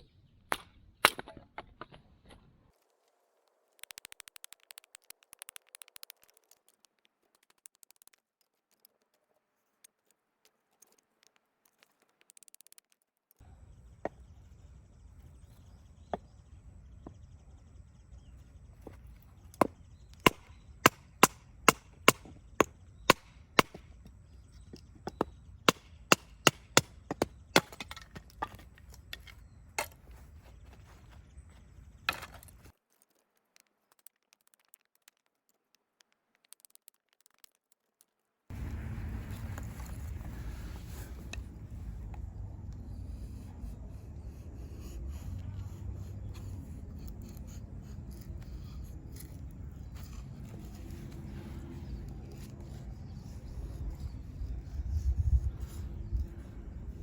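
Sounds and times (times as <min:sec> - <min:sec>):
hatchet splitting firewood: 0:00.5 - 0:02.4, 0:18.8 - 0:30.1, 0:32.0 - 0:37.6
fast crackly clicking: 0:03.6 - 0:13.4, 0:32.9 - 0:38.2.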